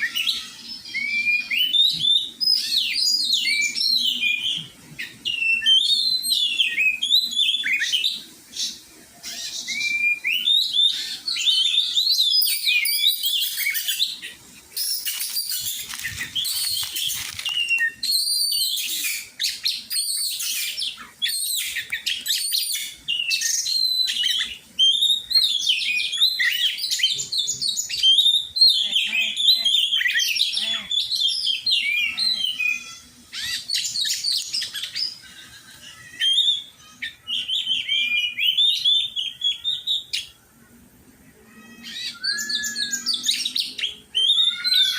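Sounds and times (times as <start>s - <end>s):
bird singing whistled phrases: 0.0s - 35.2s, 36.2s - 40.3s, 41.8s - 44.9s
bird scratchy chattering: 14.8s - 19.2s.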